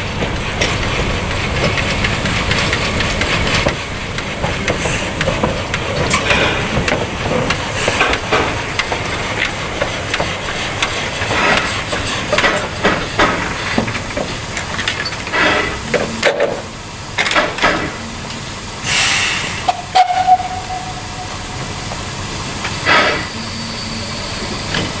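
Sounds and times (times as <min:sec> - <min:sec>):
steam locomotive hissing steam: 0:00.0 - 0:25.0
knocks and clanks: 0:01.5 - 0:18.0.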